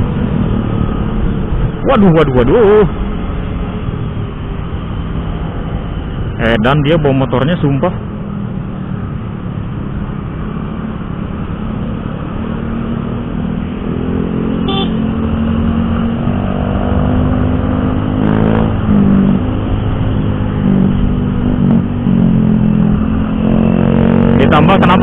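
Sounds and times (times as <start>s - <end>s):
motorcycle engine accelerating: 11.8s - 25.0s
motorcycle horn beep: 14.6s - 15.0s.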